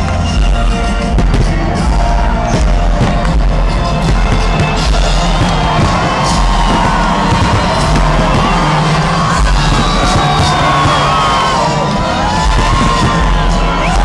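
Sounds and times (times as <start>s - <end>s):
crowd cheering and shouting: 0.0s - 14.0s
fireworks banging and crackling: 0.0s - 14.0s
music playing: 0.0s - 14.0s.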